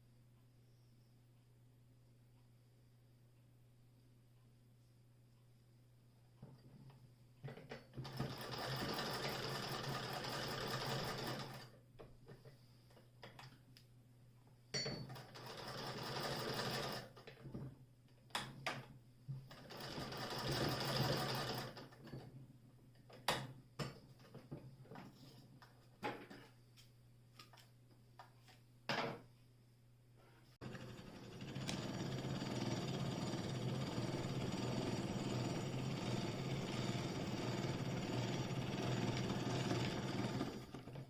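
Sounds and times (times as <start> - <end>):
hand-crank sewing machine clatter: 7.5 - 11.7, 15.1 - 17.4, 19.5 - 22.3, 30.6 - 41.0.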